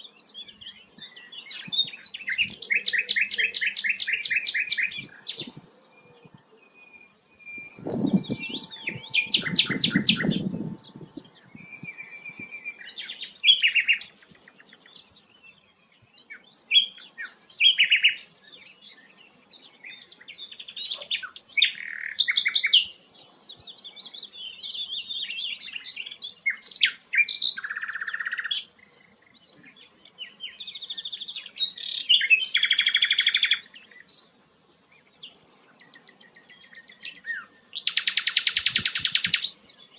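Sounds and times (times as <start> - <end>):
flycatcher singing: 0.0 - 39.9
low rumbling noise: 7.7 - 11.9.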